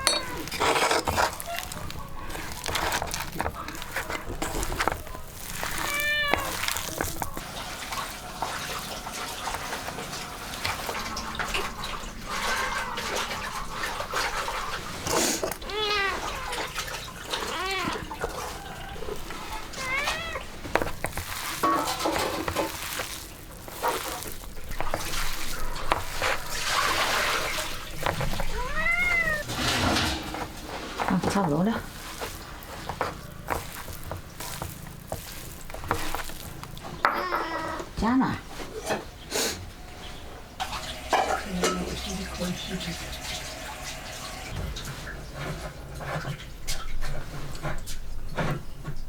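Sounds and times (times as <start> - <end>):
cat meowing: 0.0 - 2.6, 4.6 - 7.4, 15.5 - 20.7, 27.5 - 30.3, 36.9 - 38.0
knocks and clatter: 24.7 - 37.6.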